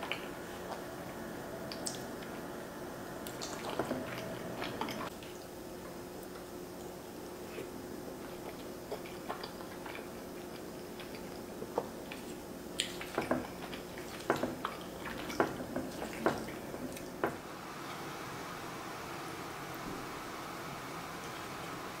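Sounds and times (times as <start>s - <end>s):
wet chewing and lip smacking: 1.7s - 2.4s, 3.2s - 5.5s, 6.2s - 17.2s.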